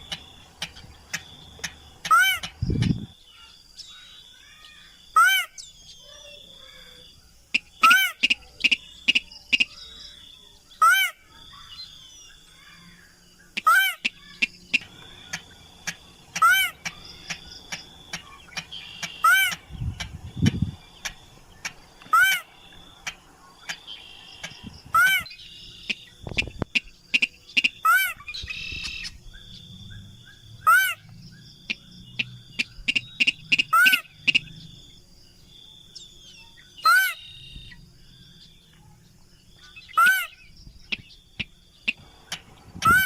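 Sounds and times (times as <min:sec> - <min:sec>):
other birds chirping: 0:00.0 - 0:43.0
rail short sharp calls: 0:32.2 - 0:34.5.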